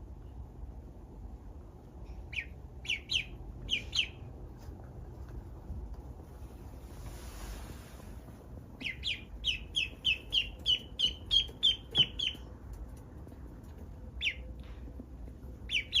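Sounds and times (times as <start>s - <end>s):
duckling peeping: 2.1s - 4.6s, 8.6s - 13.0s, 14.1s - 14.7s, 15.5s - 16.0s.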